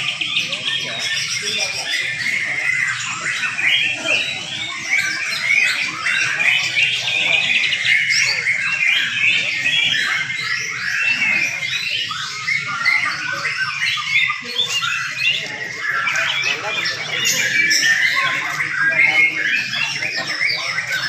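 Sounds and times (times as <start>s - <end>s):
birds chirping and trilling: 0.0s - 21.0s.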